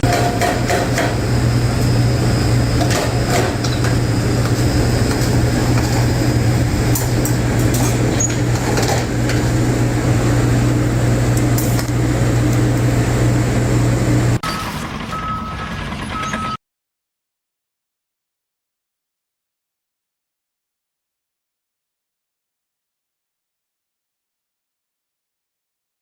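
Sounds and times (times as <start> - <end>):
knocks and clanks: 0.0 - 1.3, 2.8 - 6.2, 6.9 - 9.5
low mechanical drone: 0.0 - 16.5.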